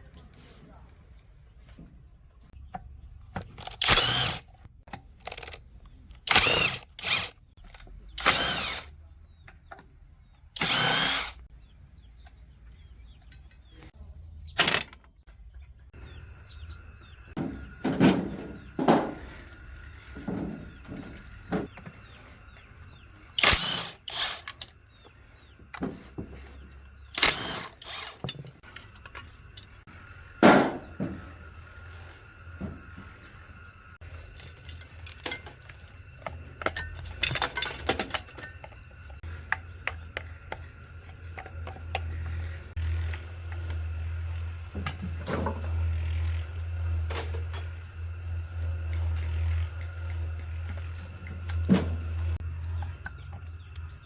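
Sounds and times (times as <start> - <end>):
power drill bursts: 3.6 - 4.5, 6.2 - 7.4, 8.2 - 8.9, 10.6 - 11.4, 23.4 - 24.7, 27.1 - 28.3.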